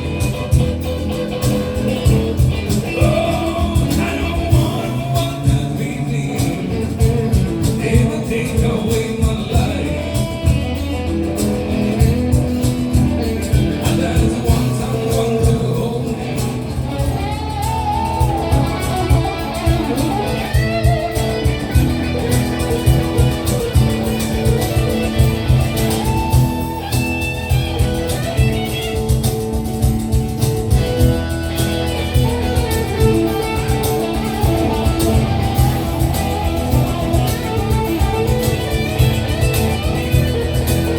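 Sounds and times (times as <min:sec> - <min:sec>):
electric guitar: 0:00.0 - 0:40.9
live rock band playing: 0:00.0 - 0:40.9.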